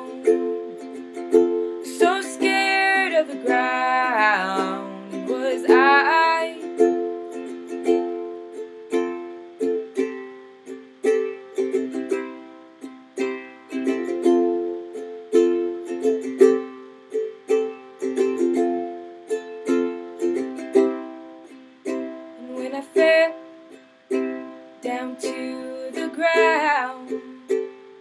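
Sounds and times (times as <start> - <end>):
ukulele strumming chords: 0.0 - 28.0.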